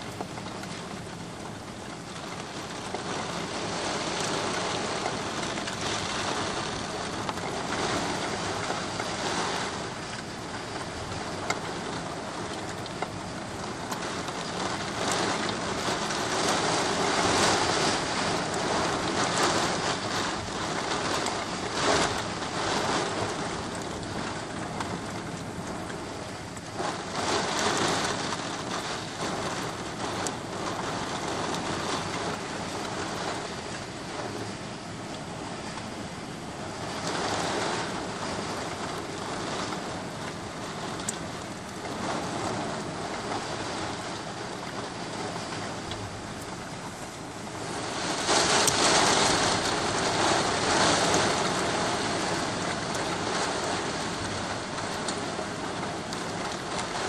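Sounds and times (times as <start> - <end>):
car tyres swishing on wet road: 0.0 - 57.0
heavy rain on pavement: 0.0 - 57.0.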